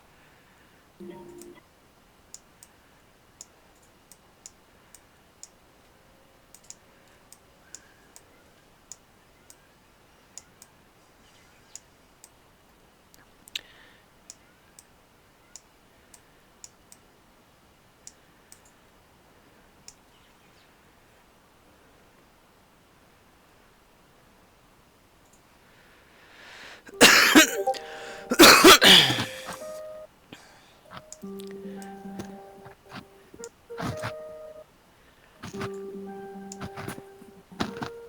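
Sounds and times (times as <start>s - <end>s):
quiet background hiss: 0.0s - 38.0s
faint sharp clicks: 2.2s - 17.1s, 18.0s - 18.8s, 25.2s - 25.5s.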